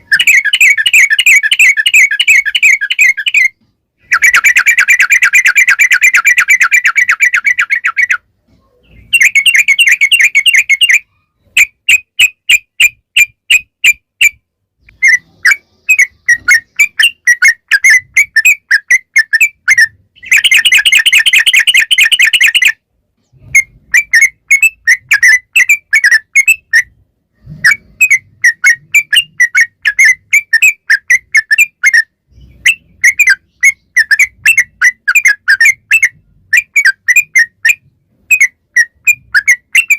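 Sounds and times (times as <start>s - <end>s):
bird whistled notes: 0.0s - 8.2s, 8.9s - 22.8s, 27.6s - 39.9s.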